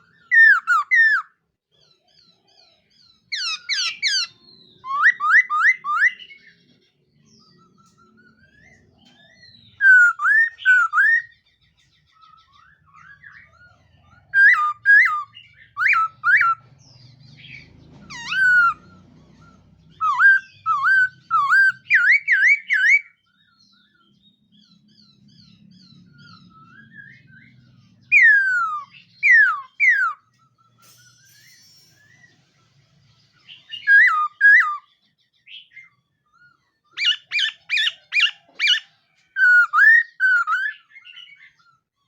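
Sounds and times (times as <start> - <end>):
laughingthrush whistled song: 0.0 - 1.4, 3.4 - 6.6, 7.4 - 11.5, 12.1 - 16.7, 17.5 - 23.6, 26.2 - 30.3, 33.5 - 34.9, 36.9 - 41.6.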